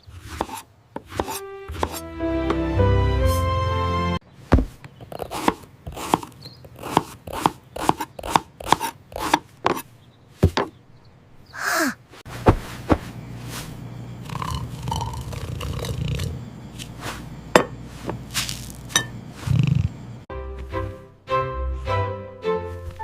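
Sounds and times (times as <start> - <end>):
music: 1.3 - 4.2, 20.3 - 23.0
low steady hum: 12.3 - 20.3.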